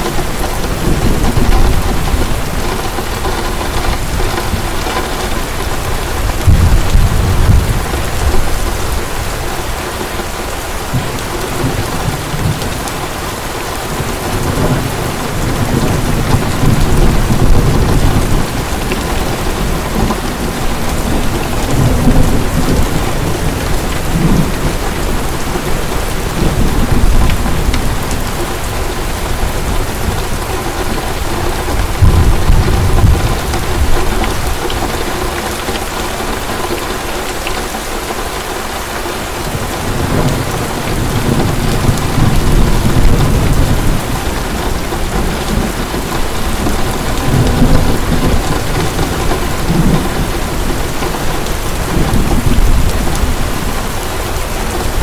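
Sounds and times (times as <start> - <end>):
rolling thunder: 0.0 - 9.6, 13.8 - 36.4, 39.4 - 55.0
heavy rain falling: 0.0 - 55.0.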